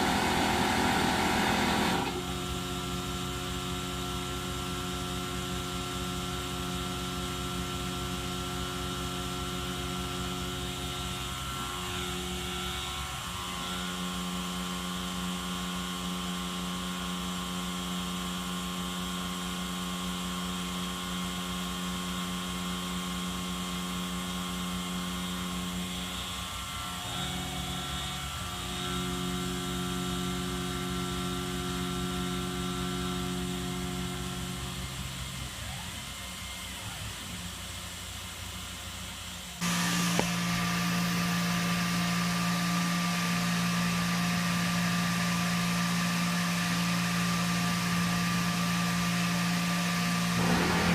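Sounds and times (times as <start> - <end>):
milling machine whirring: 50.2 - 50.9.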